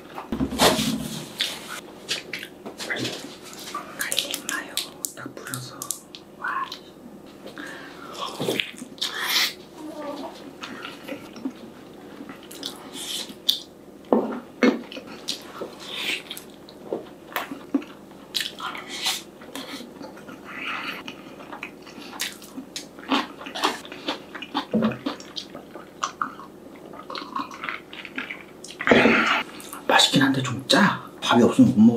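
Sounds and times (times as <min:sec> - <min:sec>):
chewing with wet mouth sounds: 0:10.6 - 0:13.7, 0:14.6 - 0:29.9.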